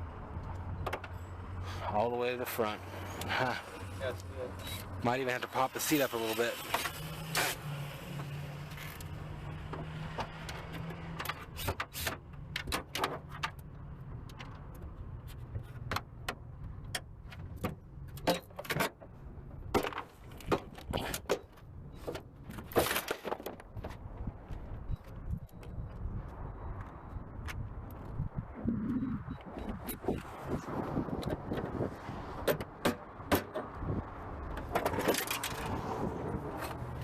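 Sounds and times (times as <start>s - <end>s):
tools and car parts clinking: 15.8s - 23.9s, 34.6s - 35.8s
low hum: 24.8s - 31.0s.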